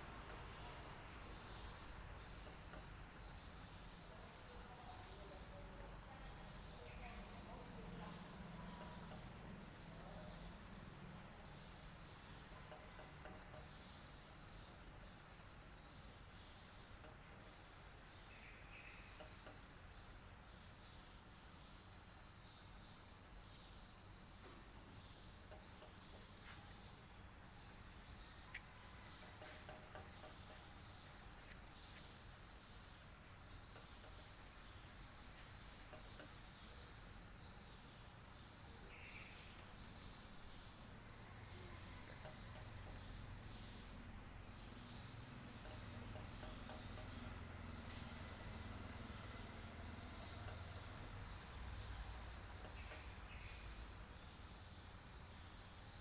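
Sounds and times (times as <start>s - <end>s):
crickets trilling: 0.0s - 56.0s
faint clicks: 28.0s - 32.1s.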